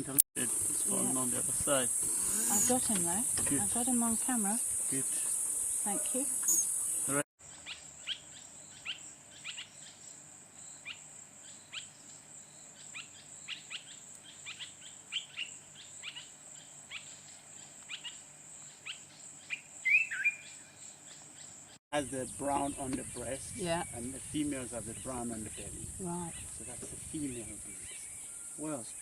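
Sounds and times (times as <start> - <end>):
high-pitched insect trill: 0.4 - 17.3, 21.7 - 29.0.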